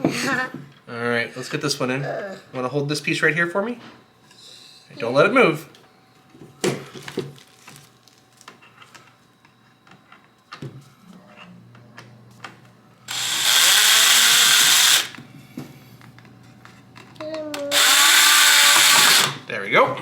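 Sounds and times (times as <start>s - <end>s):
power drill driving a screw: 13.1s - 15.2s, 17.7s - 19.4s.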